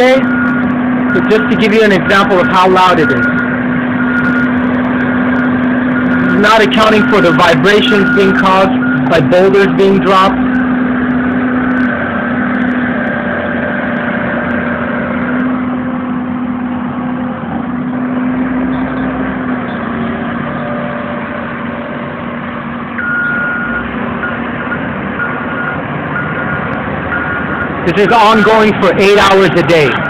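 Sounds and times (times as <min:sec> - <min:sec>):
reversing alarm beeping: 0:00.0 - 0:04.6, 0:05.4 - 0:12.7, 0:15.2 - 0:15.6, 0:23.0 - 0:28.7
construction machinery engines: 0:00.0 - 0:30.0.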